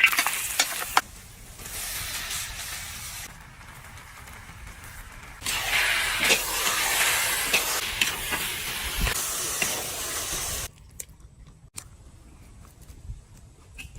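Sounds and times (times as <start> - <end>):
cooking sizzling with pops: 0.0 - 10.7.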